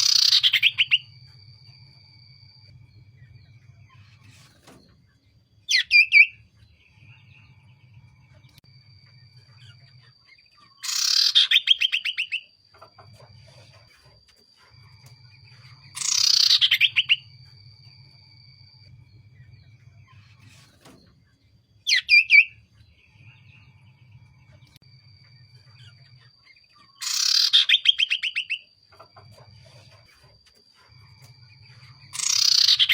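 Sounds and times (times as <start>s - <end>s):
bird chirping and trilling: 0.0s - 1.1s, 5.7s - 6.4s, 9.5s - 13.0s, 15.5s - 17.3s, 21.8s - 22.6s, 26.7s - 28.7s, 31.8s - 32.9s
low hum: 0.6s - 5.7s.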